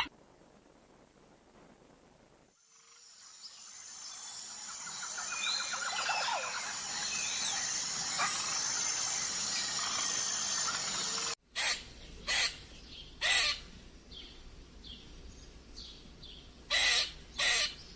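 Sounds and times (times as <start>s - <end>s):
high-pitched background hiss: 0.0s - 16.6s
bird chirps: 3.4s - 11.4s
rapid bird trill: 3.6s - 12.6s.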